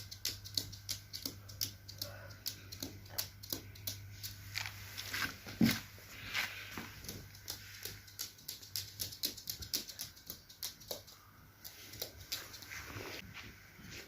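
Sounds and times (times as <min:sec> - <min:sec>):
parrot clicking and tapping: 0:00.0 - 0:04.4, 0:07.0 - 0:12.7.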